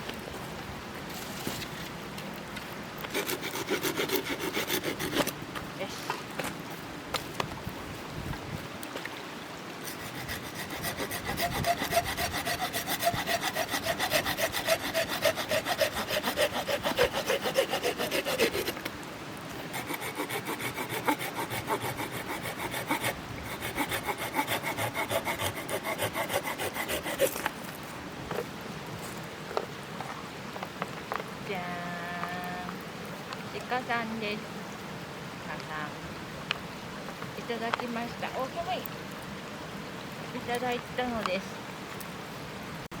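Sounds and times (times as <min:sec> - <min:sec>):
hand saw cutting wood: 0:03.1 - 0:05.3, 0:09.8 - 0:18.9, 0:19.6 - 0:27.5.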